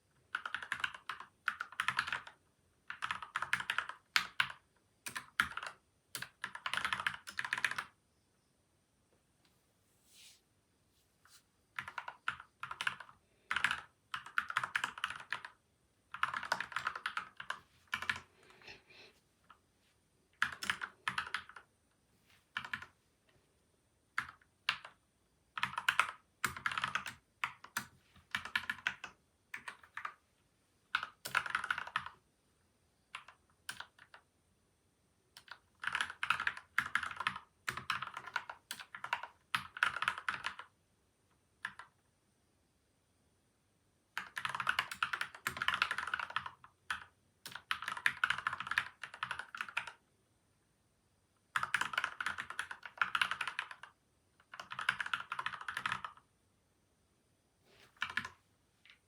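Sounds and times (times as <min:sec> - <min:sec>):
mechanical keyboard typing: 0:00.2 - 0:08.0, 0:11.8 - 0:18.3, 0:20.4 - 0:21.7, 0:22.6 - 0:22.9, 0:24.2 - 0:25.0, 0:25.6 - 0:30.2, 0:30.9 - 0:32.2, 0:33.1 - 0:34.2, 0:35.4 - 0:40.8, 0:41.6 - 0:42.0, 0:44.2 - 0:50.0, 0:51.5 - 0:56.3, 0:58.0 - 0:59.0.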